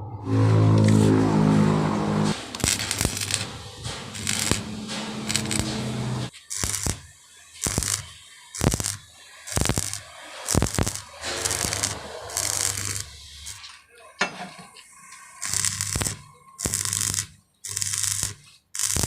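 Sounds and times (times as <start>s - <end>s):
low steady hum: 0.0s - 6.3s
metal scraping on metal: 0.0s - 7.0s, 9.5s - 18.3s.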